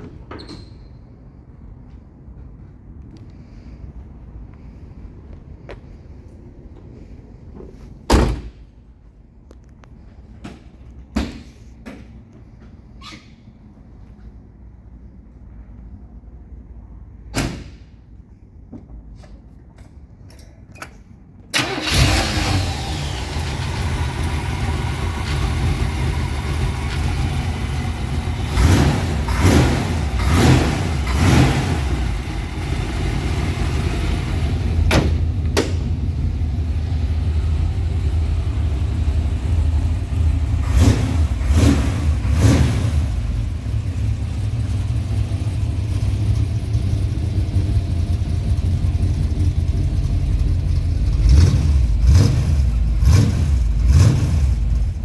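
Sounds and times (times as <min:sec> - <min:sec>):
car engine starting and idling: 0:20.8 - 0:55.0.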